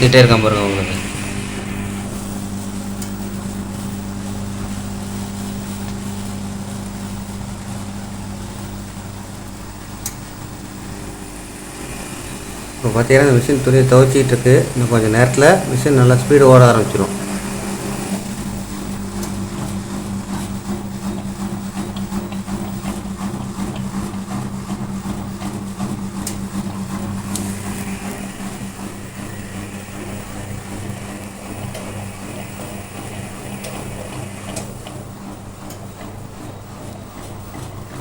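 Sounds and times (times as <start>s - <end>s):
faint high whine: 0.0s - 4.1s, 27.2s - 34.8s
washing machine motor hum: 0.0s - 38.0s.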